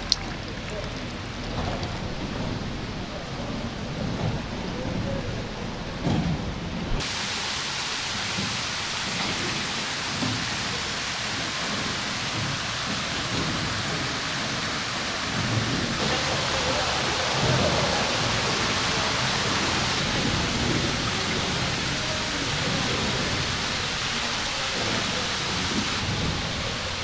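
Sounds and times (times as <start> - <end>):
falling water rushing: 0.0 - 27.0.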